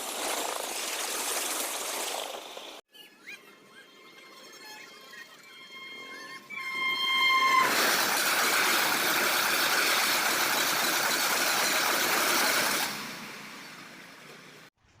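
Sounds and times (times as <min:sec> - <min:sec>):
high train horn: 0:05.6 - 0:07.8.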